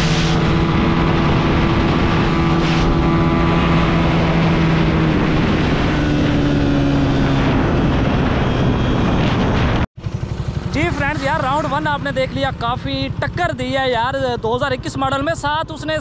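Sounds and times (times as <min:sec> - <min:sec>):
rushing noise: 0:00.0 - 0:12.6
motorcycle engines running hard: 0:00.0 - 0:16.0.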